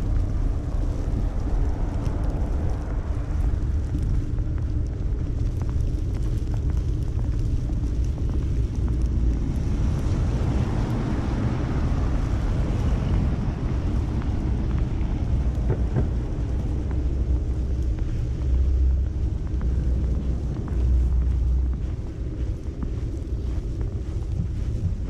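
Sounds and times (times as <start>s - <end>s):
wind buffeting microphone: 0.0s - 25.0s
city traffic passing: 9.2s - 25.0s.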